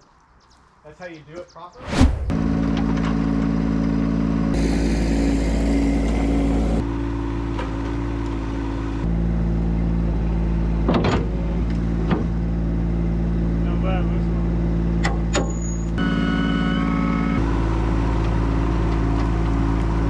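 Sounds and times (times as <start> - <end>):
hissing noise: 1.8 - 2.7.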